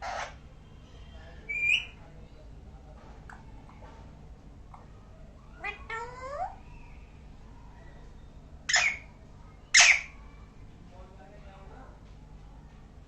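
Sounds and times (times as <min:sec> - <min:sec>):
parrot harsh screeches: 0:00.0 - 0:00.4, 0:08.7 - 0:09.1, 0:09.7 - 0:10.1.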